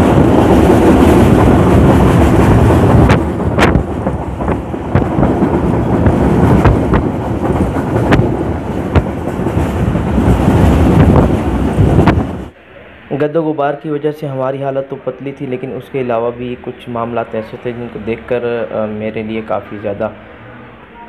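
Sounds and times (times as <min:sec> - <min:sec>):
wheels clacking on track: 0:00.0 - 0:12.5
train rumbling: 0:00.0 - 0:13.2, 0:15.3 - 0:21.0.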